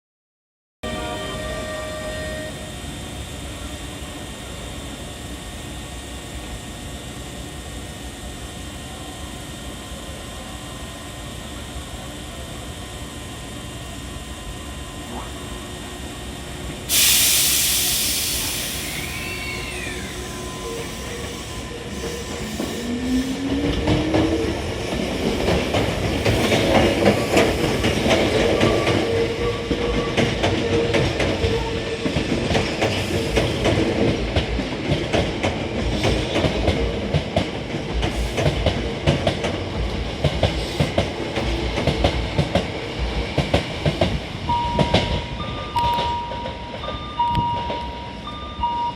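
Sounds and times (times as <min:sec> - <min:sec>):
train motor whine: 0:00.9 - 0:33.8
loud air hiss: 0:16.9 - 0:23.4.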